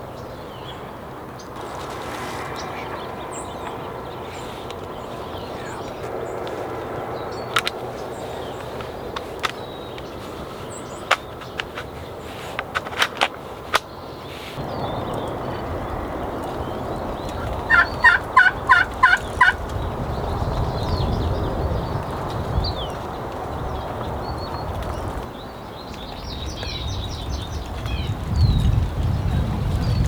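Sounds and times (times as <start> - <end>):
wind noise: 0.0 - 30.0
turkey gobbling: 17.6 - 19.6.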